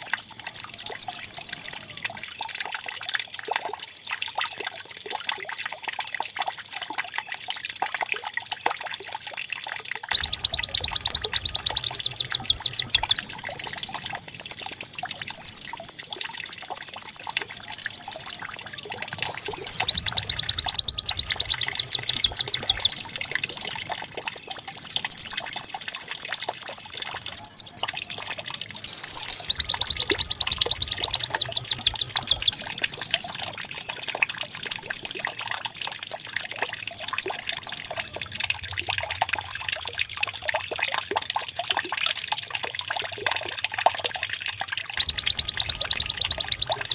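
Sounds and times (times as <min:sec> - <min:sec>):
bird song trills and warbles: 0:00.0 - 0:02.0, 0:10.1 - 0:38.5, 0:45.0 - 0:46.9
trickling water: 0:00.0 - 0:46.9.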